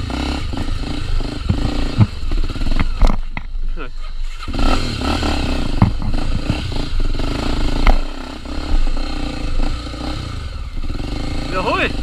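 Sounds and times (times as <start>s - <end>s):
motorcycle engine running: 0.0s - 12.0s
sharp knocks: 5.7s - 6.6s, 7.8s - 8.2s.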